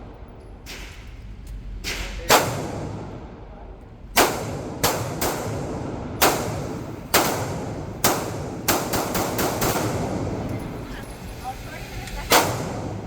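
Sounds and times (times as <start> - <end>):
gunshots with echo: 1.8 - 3.2, 4.2 - 10.5, 12.3 - 13.0.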